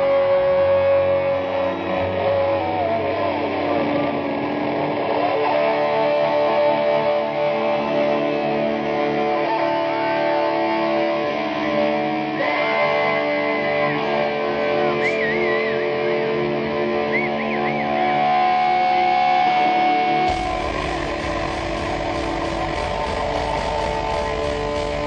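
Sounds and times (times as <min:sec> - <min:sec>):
electric guitar held notes: 0:00.0 - 0:25.0
low rumble: 0:20.3 - 0:25.0.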